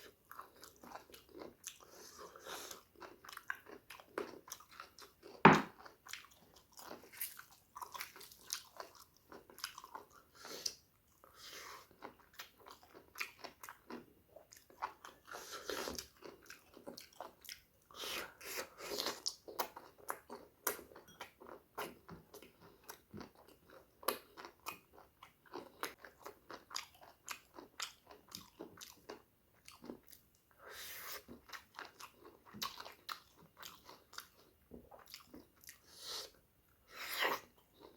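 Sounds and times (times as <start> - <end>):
person chewing wetly: 0.0 - 37.9
sharp loud knock: 5.5 - 5.7.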